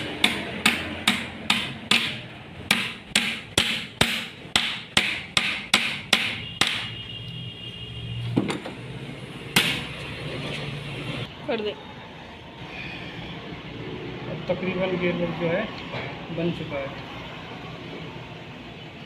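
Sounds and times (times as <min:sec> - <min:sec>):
hammer striking metal part: 0:00.0 - 0:06.9.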